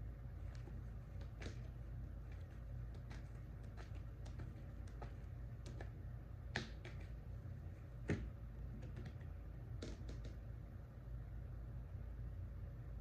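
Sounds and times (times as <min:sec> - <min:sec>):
low steady hum: 0:00.0 - 0:13.0
light clicks and taps: 0:00.4 - 0:07.3, 0:08.0 - 0:10.4.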